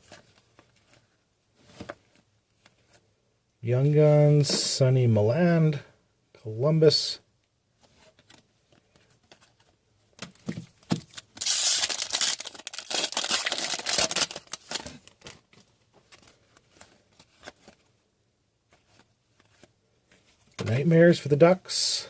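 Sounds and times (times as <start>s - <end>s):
foil wrapper tearing and crinkling: 11.1s - 15.4s.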